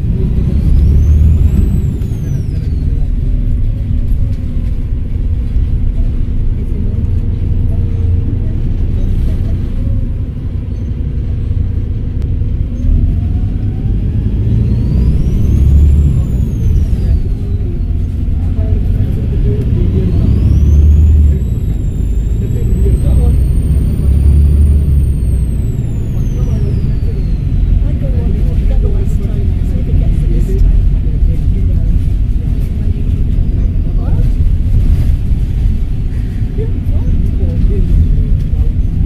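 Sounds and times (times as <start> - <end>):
turbocharger whistling: 0.0 - 3.4, 12.7 - 28.6
diesel bus engine rumbling: 0.0 - 39.0
low whine climbing in pitch: 11.8 - 29.4.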